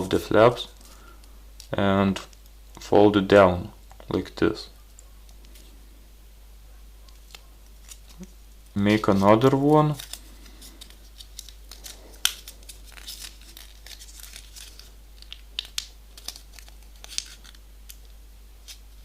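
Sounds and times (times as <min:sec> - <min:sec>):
paper crinkling: 0:07.0 - 0:19.0.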